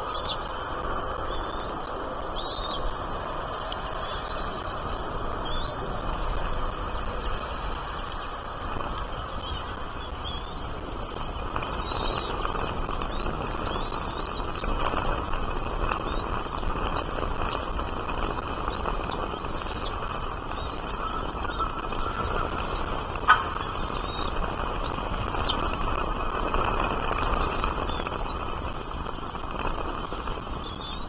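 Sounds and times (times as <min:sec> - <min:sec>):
small bird chirping: 0:00.0 - 0:01.8, 0:02.4 - 0:08.3, 0:09.3 - 0:11.2, 0:13.1 - 0:14.6, 0:18.7 - 0:19.9, 0:20.6 - 0:22.9, 0:23.5 - 0:25.6, 0:27.4 - 0:28.4, 0:30.6 - 0:31.0.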